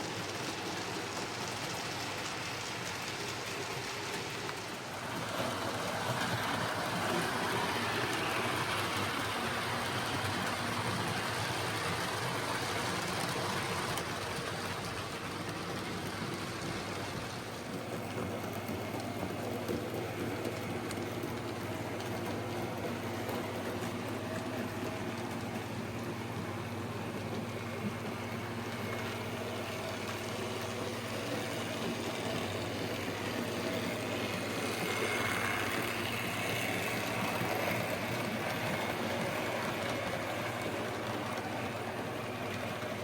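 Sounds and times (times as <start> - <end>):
wheels rattling on rails: 0.0 - 43.0
model train motor whirring: 28.7 - 43.0.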